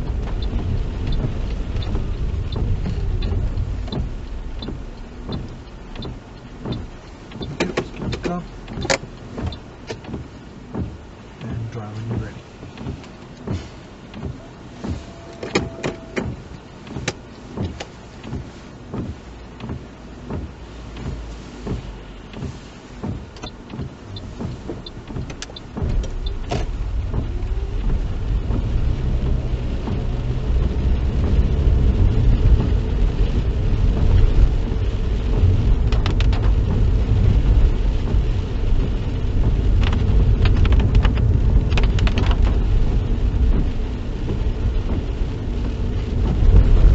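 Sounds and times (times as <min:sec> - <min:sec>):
car turn indicator ticking: 0:00.0 - 0:46.6
car engine and tyre rumble: 0:00.0 - 0:46.9.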